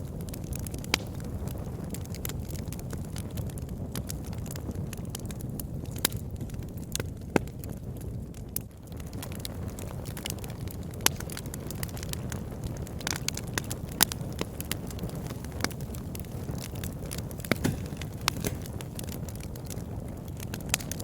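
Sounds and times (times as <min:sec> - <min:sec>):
fire crackling in fireplace: 0:00.0 - 0:21.0
low rumble of flames: 0:00.0 - 0:21.0
sharp pops of fire: 0:00.1 - 0:08.0, 0:08.6 - 0:21.0.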